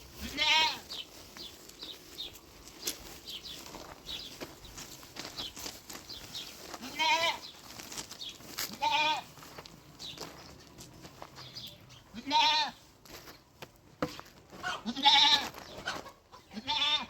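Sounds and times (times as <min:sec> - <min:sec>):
goat bleating: 0:00.1 - 0:01.0, 0:06.7 - 0:07.5, 0:08.7 - 0:09.4, 0:12.1 - 0:12.8, 0:14.6 - 0:15.6, 0:16.4 - 0:17.0.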